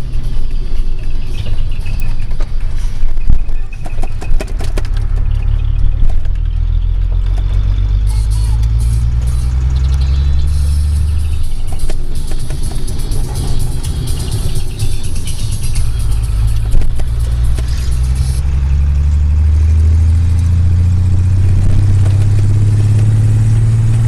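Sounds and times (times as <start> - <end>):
diesel truck engine drone: 0.0 - 24.0
sharp clicks and rattles: 0.0 - 24.0.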